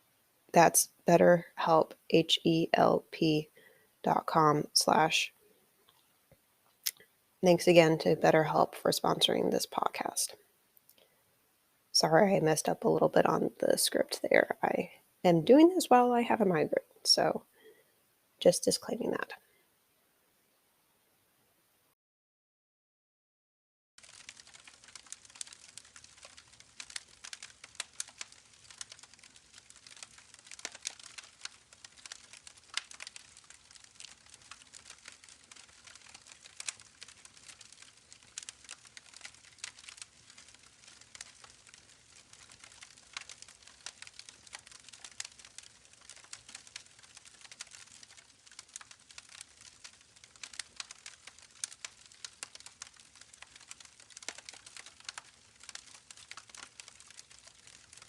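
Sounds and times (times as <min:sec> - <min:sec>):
campfire crackling: 0:24.0 - 0:58.0.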